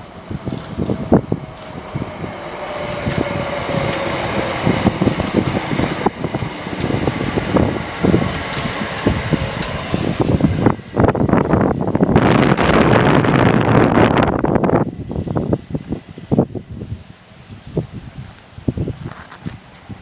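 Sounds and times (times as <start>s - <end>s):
electric train running: 0.0s - 19.0s
wheels knocking: 0.4s - 13.5s.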